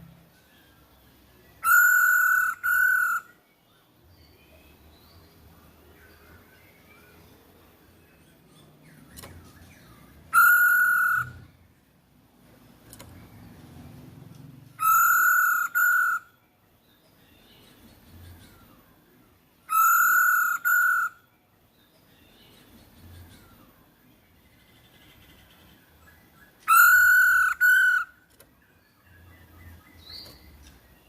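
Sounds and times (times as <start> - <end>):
faint bird chirping: 0.0 - 31.0
bird whistled calls: 1.6 - 3.4, 10.3 - 11.5, 14.8 - 16.4, 19.7 - 21.2, 26.0 - 28.2.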